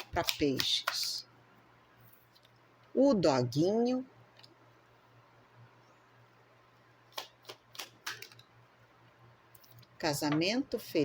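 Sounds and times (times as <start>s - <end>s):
playing cards clicking and snapping: 0.0s - 1.1s, 7.1s - 8.4s.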